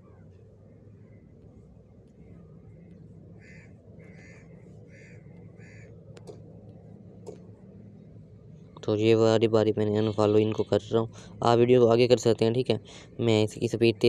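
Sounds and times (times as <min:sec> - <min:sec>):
bird calling: 0:02.3 - 0:06.0
faint clicks: 0:06.1 - 0:07.5.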